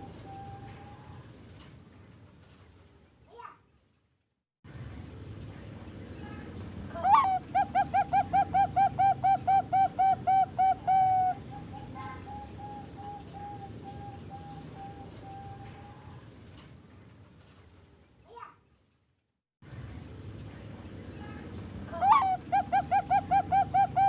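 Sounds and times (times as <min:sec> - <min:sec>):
dove cooing: 0:07.0 - 0:16.1, 0:21.9 - 0:24.0.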